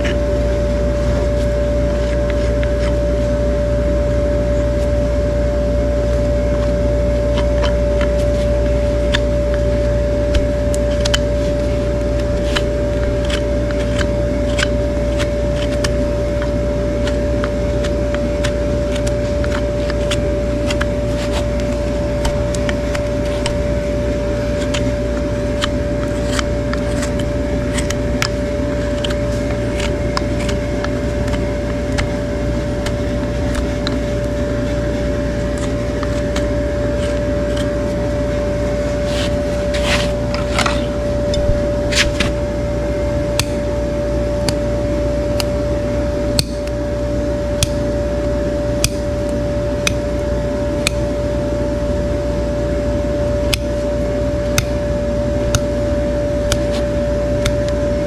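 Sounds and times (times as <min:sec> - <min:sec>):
machine hum with low rumble: 0:00.0 - 0:58.0
sharp clicks and scrapes: 0:07.3 - 0:38.0, 0:39.0 - 0:42.4.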